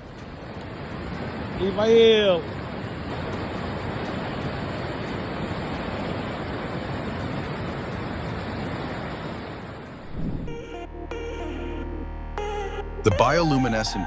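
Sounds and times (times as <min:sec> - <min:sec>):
floodwater rushing: 0:00.0 - 0:10.2.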